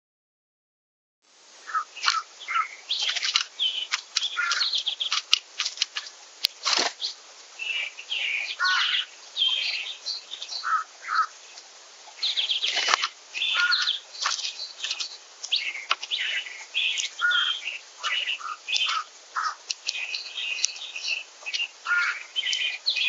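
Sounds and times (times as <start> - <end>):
songbirds chirping and singing: 1.6 - 23.0
brief rustle: 3.0 - 7.2, 12.6 - 16.2.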